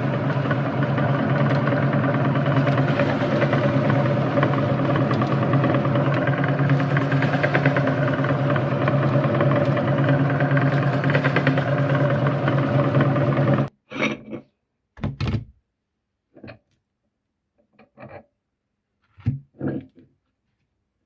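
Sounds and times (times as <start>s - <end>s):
electric meat grinder running: 0.0s - 13.7s.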